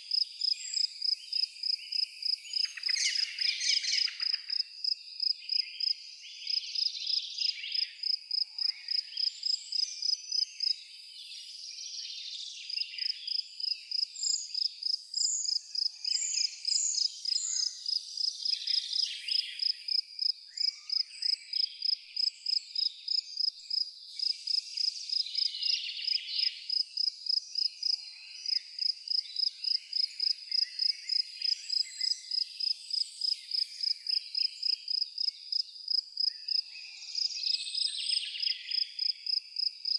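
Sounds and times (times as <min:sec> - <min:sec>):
cricket chirping: 0:00.0 - 0:10.8, 0:12.7 - 0:36.6, 0:37.2 - 0:39.9
birds singing and calling: 0:00.0 - 0:39.9.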